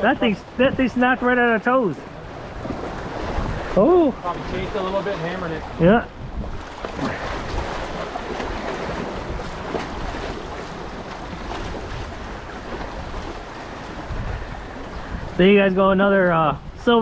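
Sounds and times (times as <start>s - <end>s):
river water moving: 0.0s - 17.0s
wind on microphone: 2.1s - 15.7s.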